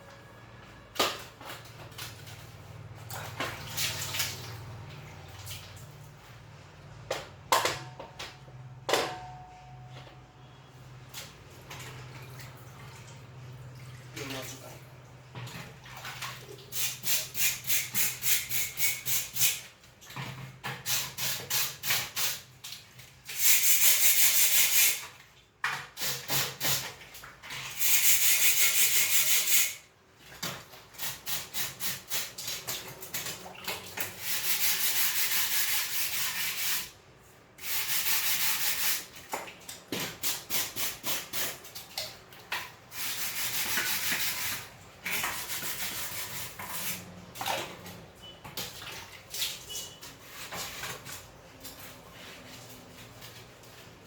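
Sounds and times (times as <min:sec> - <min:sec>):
hand scrubbing strokes: 0:23.3 - 0:25.1, 0:27.7 - 0:29.8, 0:34.0 - 0:37.0, 0:37.6 - 0:39.3, 0:42.9 - 0:47.3, 0:49.0 - 0:54.0.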